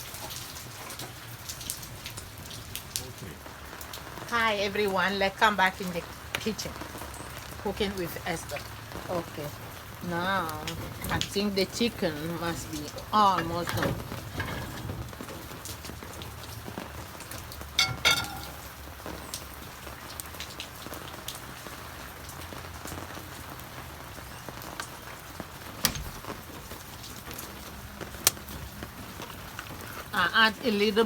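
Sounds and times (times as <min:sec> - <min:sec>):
rain pattering: 0:00.0 - 0:31.0.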